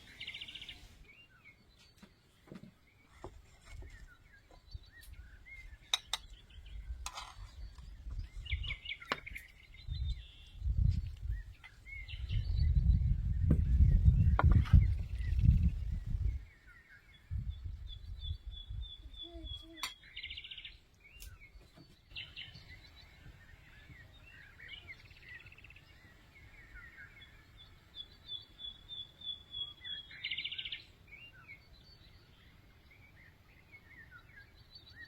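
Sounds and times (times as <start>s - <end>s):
other birds chirping: 0.0s - 35.0s
songbird singing: 0.0s - 35.0s.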